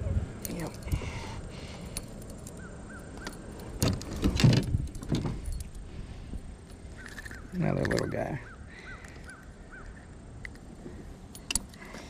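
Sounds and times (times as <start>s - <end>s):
knocks and clatters on a kayak: 3.8s - 5.5s.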